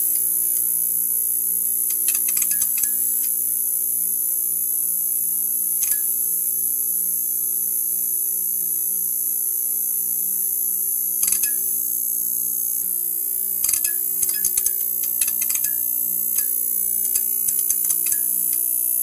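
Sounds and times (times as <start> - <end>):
neon sign buzzing: 9.6 - 19.0.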